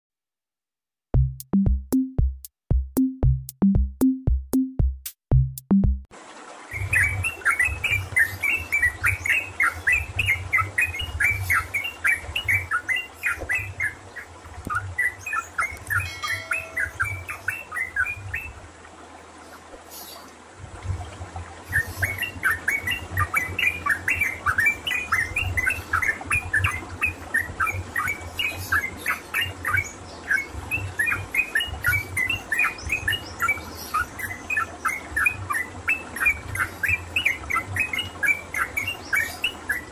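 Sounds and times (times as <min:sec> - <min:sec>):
intro jingle with drum beats: 0:01.2 - 0:06.1
bird singing rapid chirps: 0:06.7 - 0:18.6, 0:21.7 - 0:39.9.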